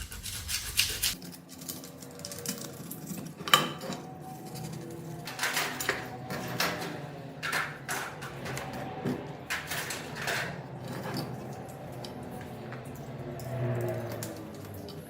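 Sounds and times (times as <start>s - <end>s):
scrapes and knocks: 0.0s - 1.2s.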